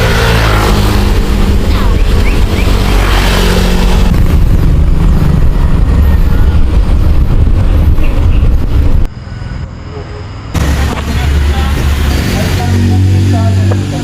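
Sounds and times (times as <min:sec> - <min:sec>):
wind buffeting microphone: 0:00.7 - 0:09.1.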